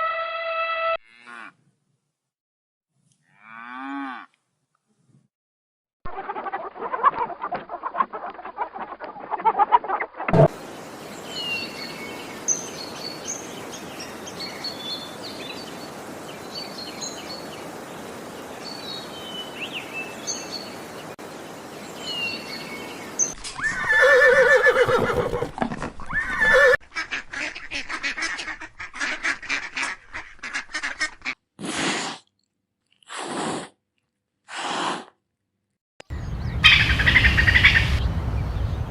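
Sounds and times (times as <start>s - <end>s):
small birds chirping: 10.5s - 23.4s, 36.1s - 38.9s
outdoor hiss: 10.5s - 24.3s
horse whinnying: 23.6s - 26.8s
waterfowl calls: 36.2s - 38.2s.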